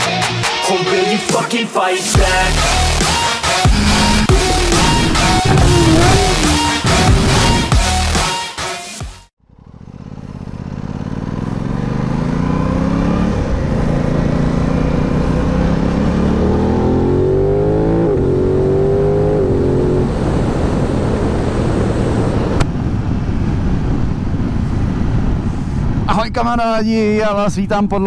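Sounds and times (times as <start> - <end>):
motorcycle engine accelerating: 2.2 - 8.2, 9.4 - 24.4.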